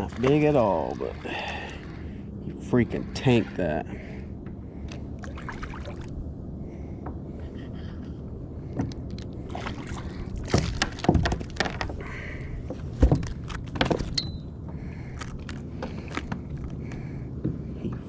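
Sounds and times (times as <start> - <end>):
steady low rumble: 0.0 - 18.0
gear knocking against kayak: 10.4 - 12.0.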